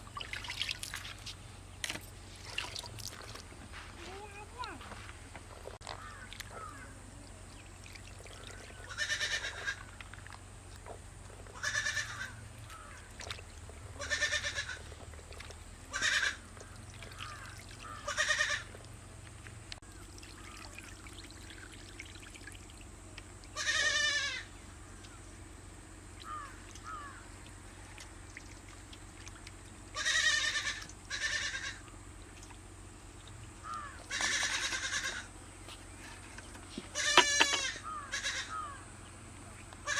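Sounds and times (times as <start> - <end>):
goat bleating: 8.8 - 9.9, 11.5 - 12.4, 14.0 - 14.9, 15.9 - 16.4, 18.0 - 18.7, 23.6 - 24.5, 30.0 - 31.8, 34.0 - 35.3, 36.9 - 38.6.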